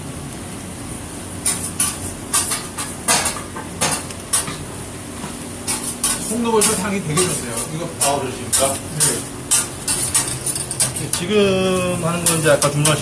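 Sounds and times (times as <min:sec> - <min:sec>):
metal utensil scraping a pan: 0:05.7 - 0:11.2.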